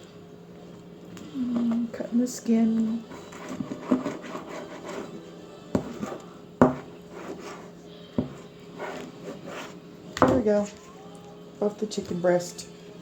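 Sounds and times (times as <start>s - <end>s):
soft scraping and handling: 3.1s - 9.8s
knife knocking on cutting board: 6.6s - 6.9s.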